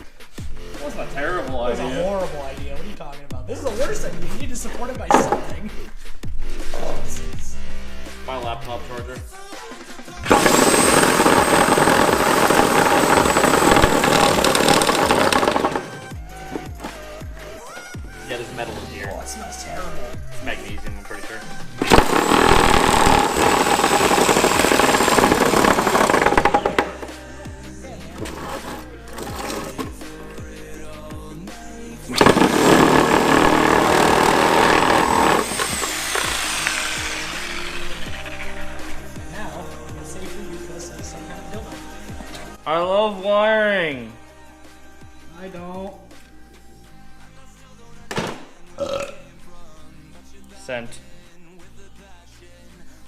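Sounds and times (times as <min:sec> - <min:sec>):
electric power tool whining: 0:10.2 - 0:17.0, 0:21.8 - 0:27.1, 0:28.2 - 0:29.9, 0:32.1 - 0:39.2.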